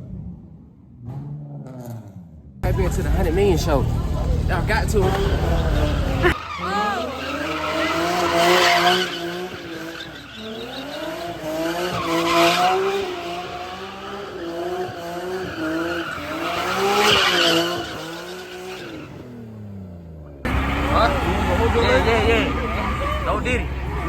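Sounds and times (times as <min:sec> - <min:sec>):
car engine at high revs: 0:00.9 - 0:24.0
tires squealing: 0:02.6 - 0:24.0.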